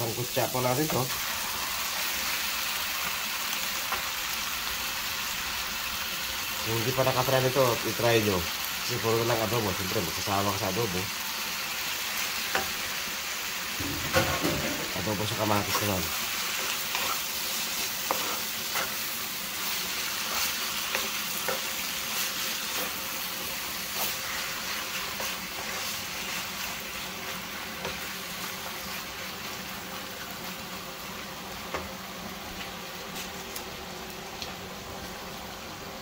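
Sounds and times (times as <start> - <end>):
chicken sizzling in a wok: 0.0 - 36.0
spatula scraping and tapping pan: 16.6 - 19.0, 19.6 - 21.8.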